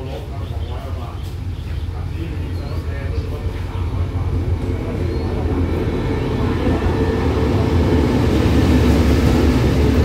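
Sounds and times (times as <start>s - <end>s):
diesel locomotive engine rumble: 0.0s - 10.0s.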